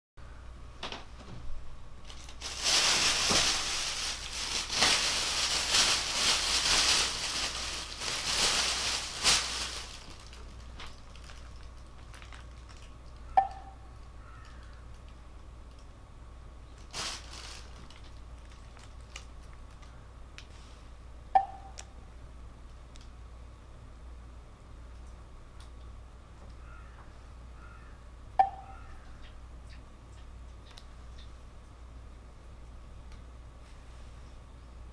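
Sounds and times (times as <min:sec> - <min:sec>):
plastic packaging crinkling: 0:02.0 - 0:13.3, 0:16.7 - 0:20.5.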